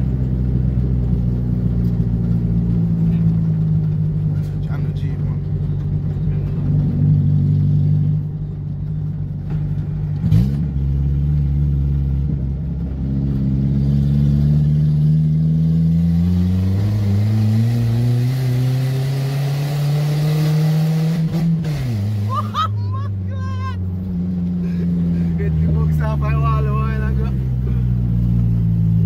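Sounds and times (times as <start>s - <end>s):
car engine accelerating: 0.0s - 29.0s.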